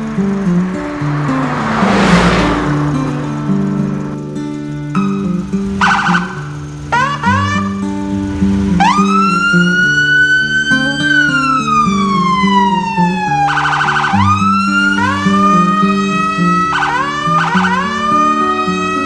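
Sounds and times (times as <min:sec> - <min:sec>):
siren-like gliding tone: 0:00.0 - 0:06.4.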